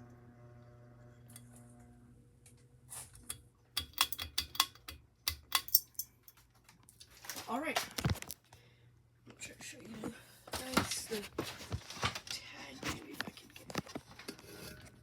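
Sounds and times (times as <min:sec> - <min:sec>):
ceiling fan motor hum: 0:00.0 - 0:06.0
sharp clicks and knocks: 0:03.8 - 0:06.0.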